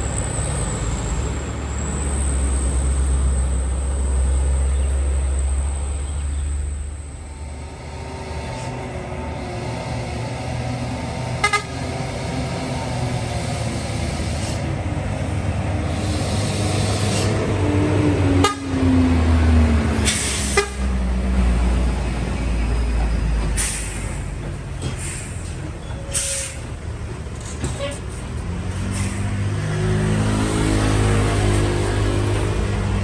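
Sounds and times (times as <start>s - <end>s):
diesel truck engine rumbling: 0.0s - 33.0s
air brake hisses: 20.0s - 20.8s, 23.5s - 24.3s, 24.9s - 26.6s.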